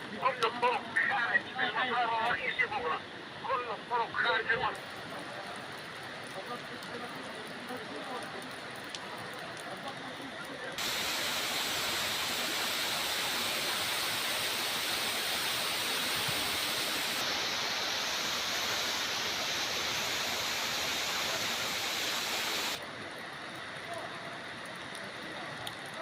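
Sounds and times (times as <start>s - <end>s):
waterfall rushing: 10.8s - 22.8s.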